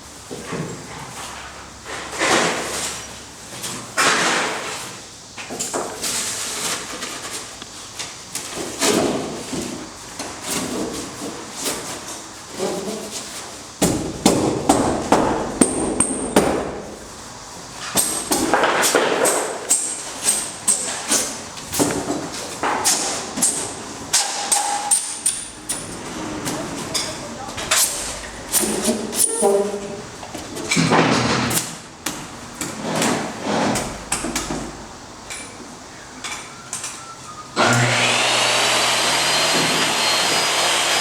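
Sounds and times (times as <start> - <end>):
knocking and scraping of carpentry: 17.8 - 35.6.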